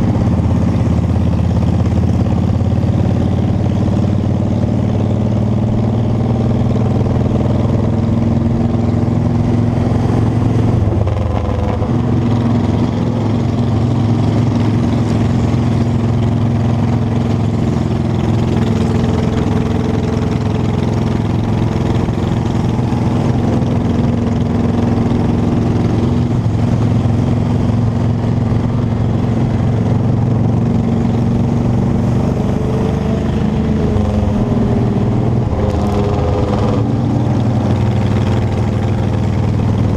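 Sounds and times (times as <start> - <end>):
motorcycle engine running: 0.0 - 39.9
noisy rush: 8.4 - 39.9.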